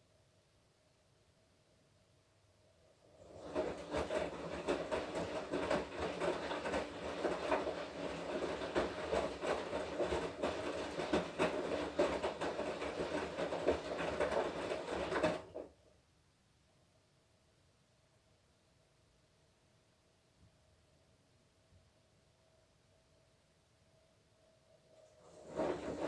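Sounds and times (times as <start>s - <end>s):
washing machine drum rattling: 3.2s - 15.7s, 25.3s - 26.0s
washing machine motor whine: 3.2s - 15.7s, 24.9s - 26.0s.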